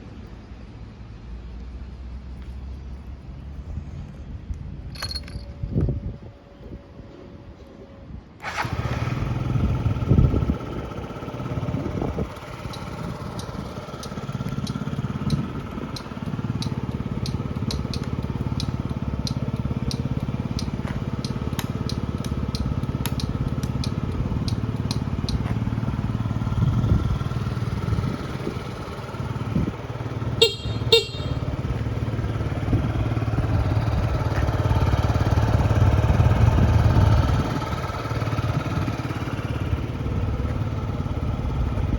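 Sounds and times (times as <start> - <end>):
scooter engine starting and idling: 8.4 - 41.9
turn-signal flasher ticking: 12.6 - 25.5
horn beeps: 30.3 - 31.6.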